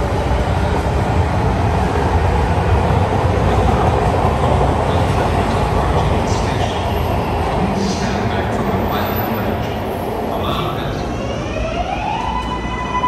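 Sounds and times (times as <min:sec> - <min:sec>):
train rumbling past: 0:00.0 - 0:13.0.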